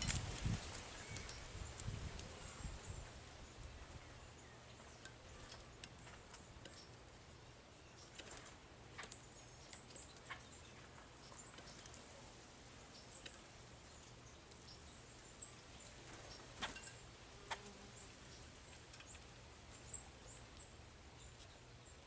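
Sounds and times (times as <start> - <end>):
birds pecking at feeder: 0.0 - 22.0
quiet hiss: 0.0 - 22.0.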